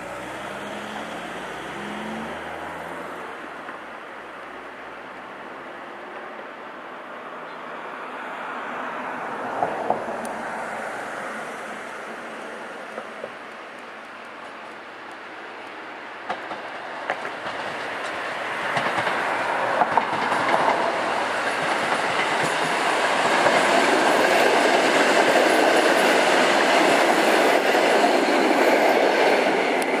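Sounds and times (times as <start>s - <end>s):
train wheels clicking over rail joints: 15.7s - 30.0s.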